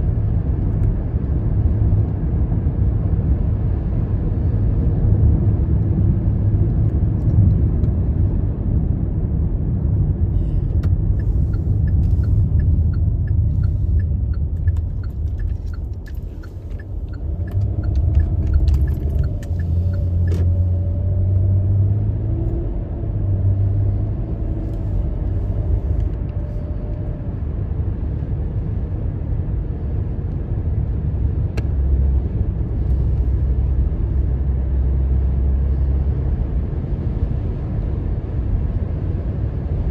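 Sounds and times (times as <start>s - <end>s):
truck engine and road rumble: 0.0s - 39.9s
turn signal clicking: 10.8s - 20.7s.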